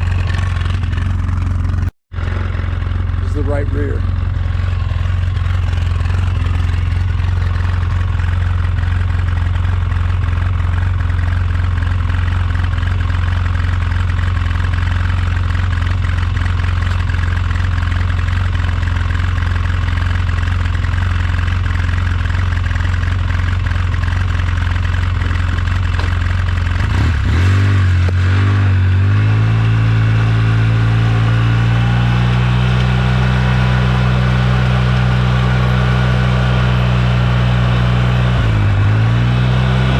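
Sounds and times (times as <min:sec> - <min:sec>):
engine idling and revving: 0:00.0 - 0:39.9.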